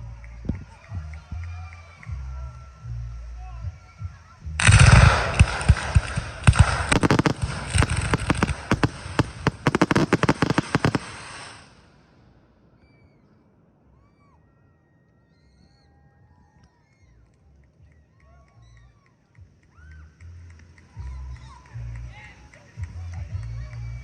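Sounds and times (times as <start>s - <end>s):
fireworks booming and crackling: 4.6s - 11.8s.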